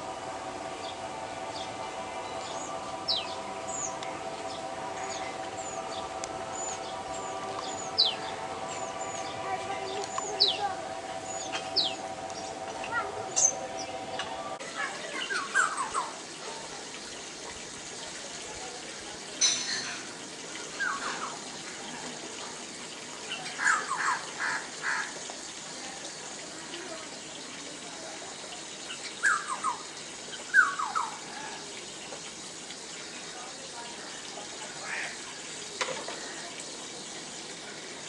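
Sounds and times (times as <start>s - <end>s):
bird calls: 5.0s - 16.2s, 28.9s - 31.6s.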